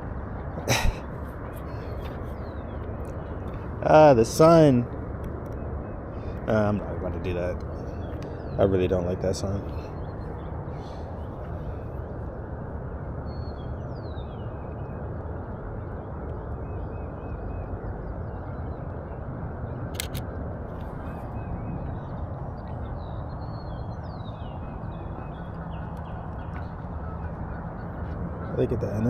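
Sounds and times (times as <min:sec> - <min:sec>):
distant bird calls: 0:00.0 - 0:12.4, 0:13.2 - 0:15.4, 0:20.8 - 0:29.0
steady outdoor rumble: 0:00.0 - 0:29.0.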